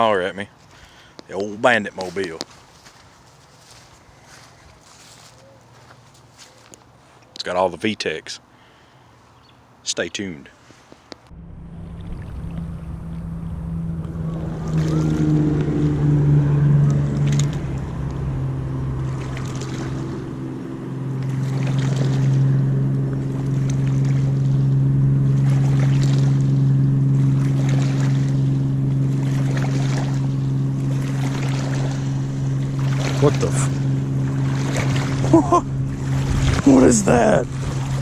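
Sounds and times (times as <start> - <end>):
wind: 0.0 - 38.0
water noise: 11.0 - 38.0
motor humming: 11.3 - 38.0.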